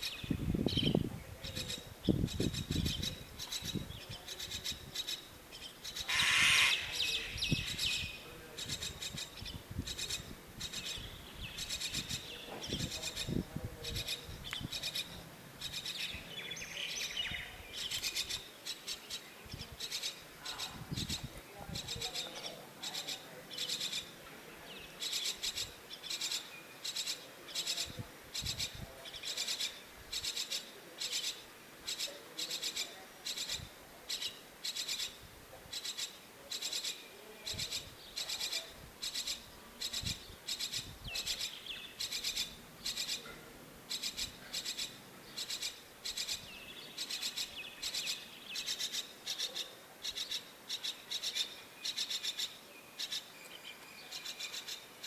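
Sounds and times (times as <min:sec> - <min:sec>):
bird chick raspy begging calls: 0:01.5 - 0:16.3, 0:25.0 - 0:53.3.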